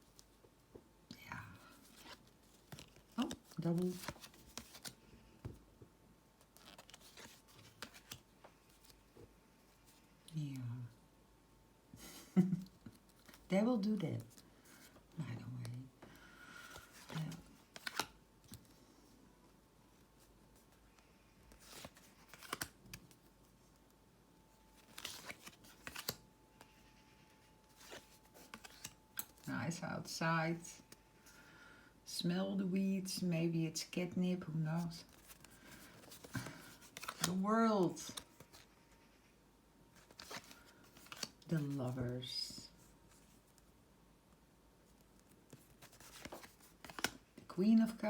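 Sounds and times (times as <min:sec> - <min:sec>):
cards clicking and rustling: 0:01.8 - 0:05.0, 0:06.5 - 0:09.0, 0:16.6 - 0:18.7, 0:21.0 - 0:23.2, 0:24.7 - 0:26.7, 0:27.7 - 0:29.5, 0:35.1 - 0:37.4, 0:40.0 - 0:41.4, 0:45.2 - 0:47.3
cards swishing and clicking: 0:24.8 - 0:26.7, 0:27.8 - 0:29.4.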